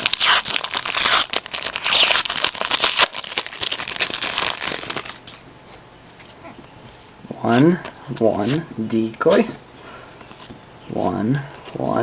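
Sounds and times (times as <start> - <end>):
card pack wrapper crinkling: 0.0 - 5.4.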